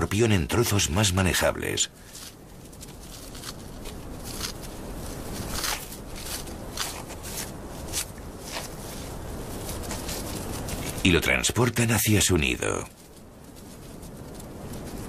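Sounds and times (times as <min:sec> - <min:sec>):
steady low hiss: 0:00.0 - 0:15.0
small crisp clicks and crunches: 0:02.0 - 0:08.8.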